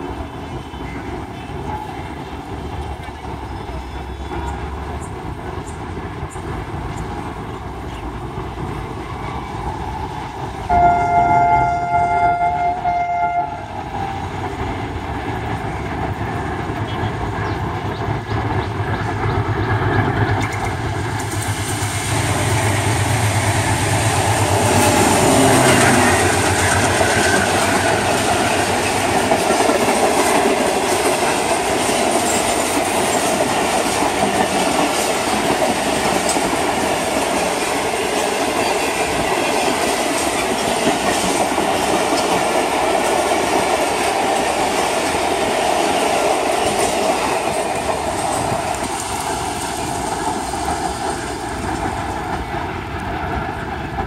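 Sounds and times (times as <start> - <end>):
diesel locomotive engine rumble: 0.0 - 54.0
train wheels clattering on rails: 0.0 - 54.0
locomotive horn: 10.7 - 14.4, 24.0 - 28.3.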